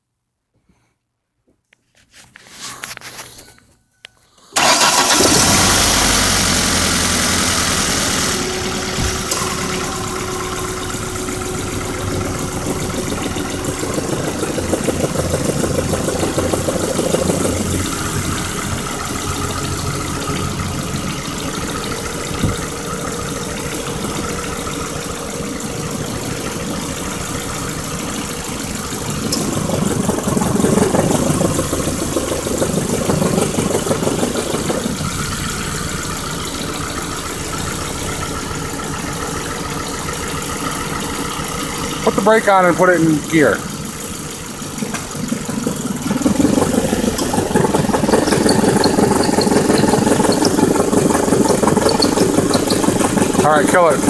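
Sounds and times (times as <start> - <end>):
car engine starting and idling: 4.2 - 54.0
man talking: 42.0 - 43.6, 53.4 - 54.0.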